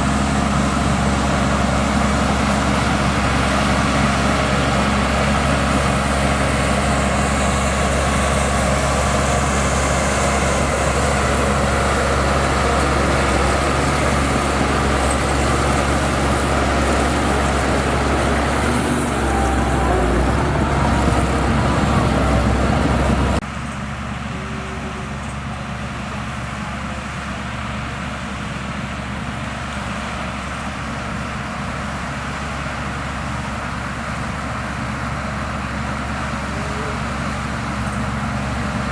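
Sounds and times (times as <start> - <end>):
heavy diesel machinery engine: 0.0 - 38.9.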